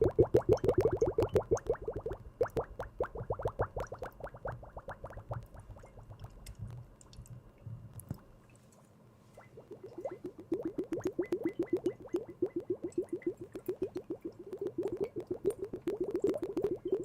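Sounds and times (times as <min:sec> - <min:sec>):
liquid plops: 0:09.4 - 0:17.0.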